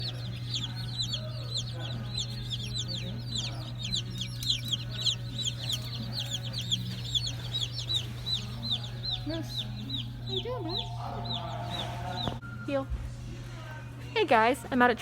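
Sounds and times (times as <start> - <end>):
chicks peeping: 0.0 - 12.4
steady low hum: 0.0 - 12.4.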